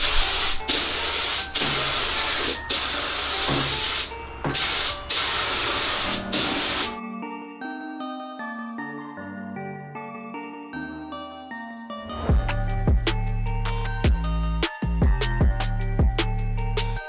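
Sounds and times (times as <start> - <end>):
spray gun hissing: 0.0 - 7.0
soft background music: 0.0 - 17.0.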